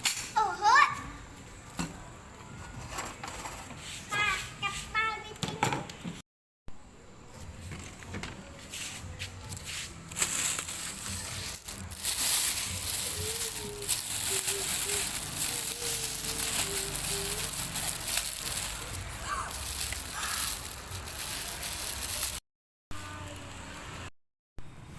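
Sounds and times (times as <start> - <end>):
people chewing crispy food: 10.6 - 22.4.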